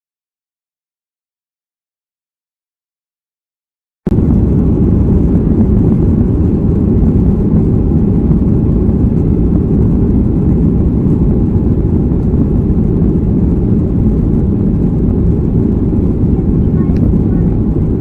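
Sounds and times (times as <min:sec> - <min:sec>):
airplane cabin engine rumble: 0:04.1 - 0:18.0.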